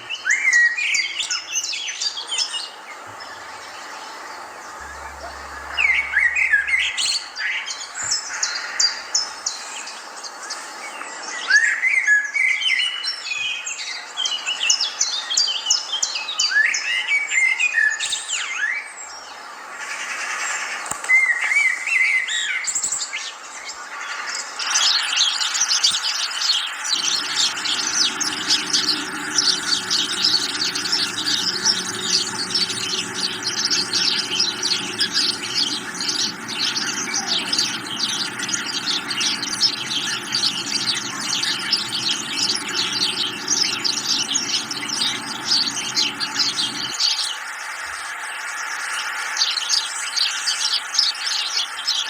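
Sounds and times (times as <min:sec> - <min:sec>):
low steady hum: 0:03.1 - 0:07.5, 0:26.9 - 0:47.0
songbirds singing and chirping: 0:27.0 - 0:47.0.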